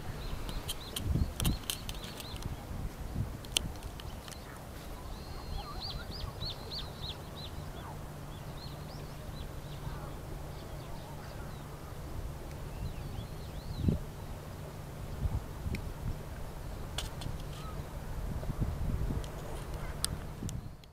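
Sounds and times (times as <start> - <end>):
bird chirping: 0.0 - 2.5, 4.0 - 12.0
steady low rumble: 0.0 - 20.9.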